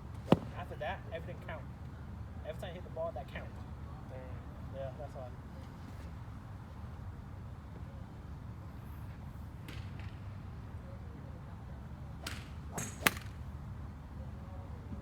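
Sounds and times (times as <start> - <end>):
golf club striking ball: 0.3 - 0.5, 12.2 - 13.4
club swish: 12.3 - 13.4.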